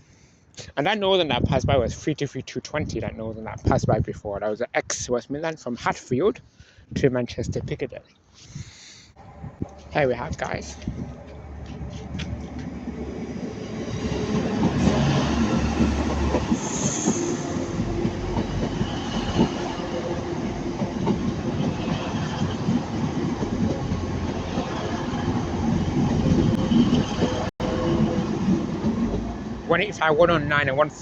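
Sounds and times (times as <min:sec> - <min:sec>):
diesel passenger train passing: 0:09.2 - 0:31.0.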